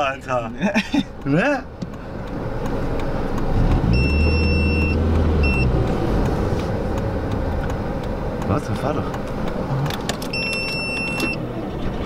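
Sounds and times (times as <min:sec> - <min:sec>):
car engine drone from cabin: 0:00.0 - 0:12.0
high beeps: 0:03.9 - 0:05.8, 0:10.3 - 0:11.4.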